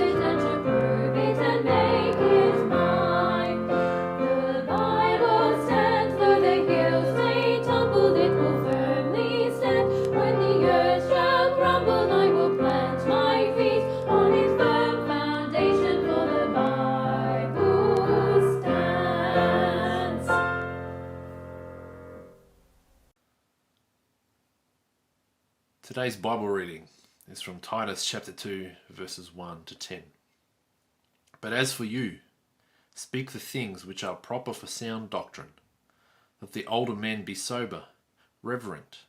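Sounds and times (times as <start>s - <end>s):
choir singing a hymn: 0.0s - 21.0s
piano accompaniment: 0.0s - 22.6s.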